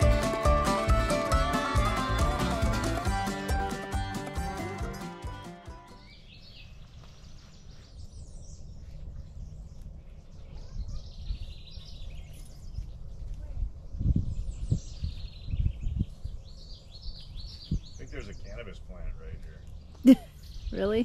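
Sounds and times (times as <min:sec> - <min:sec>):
songbird chirping: 0:05.9 - 0:21.0.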